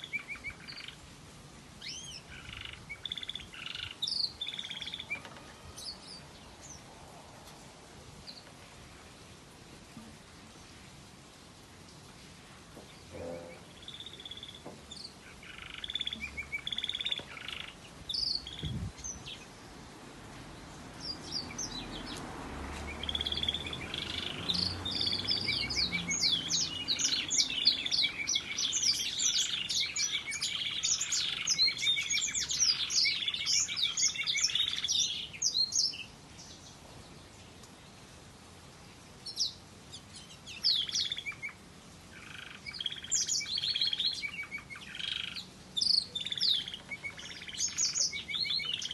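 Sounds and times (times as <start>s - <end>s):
canary singing trills: 0.0s - 1.0s, 1.8s - 6.8s, 12.9s - 19.6s, 22.9s - 36.8s, 39.2s - 48.9s.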